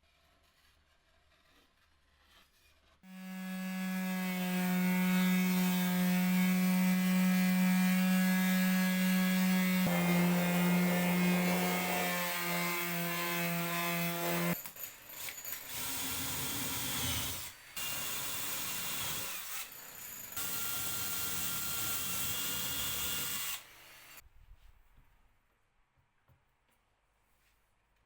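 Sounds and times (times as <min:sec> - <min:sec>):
power tool cutting wood: 0:03.1 - 0:14.6, 0:15.2 - 0:24.2.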